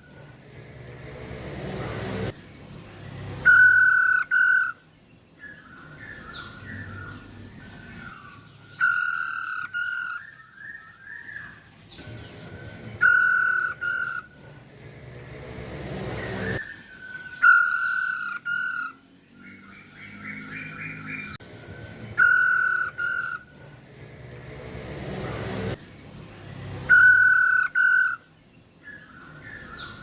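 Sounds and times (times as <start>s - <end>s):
bird warbling chatter: 3.4s - 4.8s, 7.9s - 10.3s, 13.0s - 14.3s, 17.4s - 19.0s, 22.2s - 23.5s, 26.9s - 28.2s
bird two-part calls: 3.4s - 11.5s, 13.0s - 14.4s, 16.2s - 19.0s, 22.2s - 23.5s, 26.9s - 30.0s.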